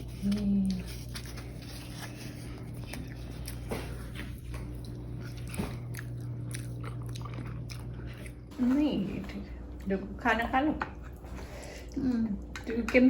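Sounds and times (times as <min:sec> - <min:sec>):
person biting and chewing: 0:00.0 - 0:08.5
steady low hum: 0:00.0 - 0:13.0.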